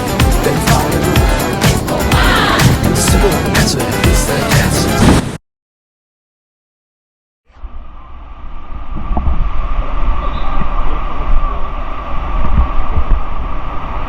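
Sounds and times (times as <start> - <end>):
wind rumbling on microphone: 7.6 - 14.0.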